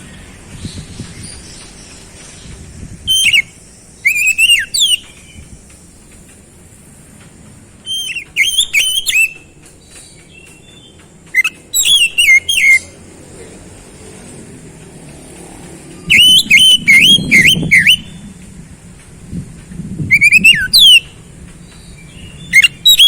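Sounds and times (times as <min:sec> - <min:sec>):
bird singing whistled notes: 0:00.0 - 0:06.0, 0:07.8 - 0:13.0, 0:15.9 - 0:18.4, 0:20.1 - 0:23.0.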